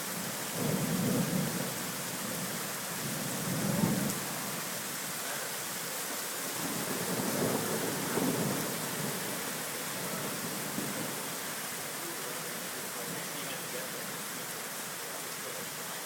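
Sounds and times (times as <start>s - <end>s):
steady rain hissing: 0.0s - 16.0s
low rumble of thunder: 0.5s - 4.3s, 6.6s - 11.3s.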